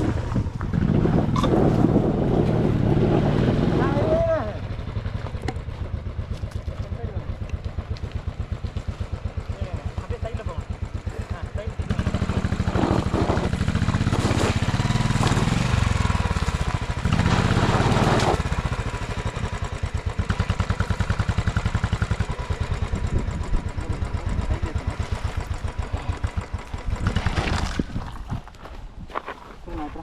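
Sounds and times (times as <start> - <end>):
motorcycle engine revving and chugging: 0.0 - 28.6.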